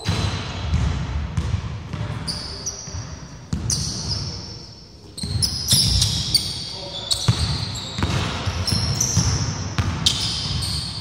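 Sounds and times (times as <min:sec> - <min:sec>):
basketball bouncing on wooden floor: 0:00.0 - 0:02.2, 0:07.3 - 0:10.7
sneakers squeaking on wood: 0:02.2 - 0:11.0.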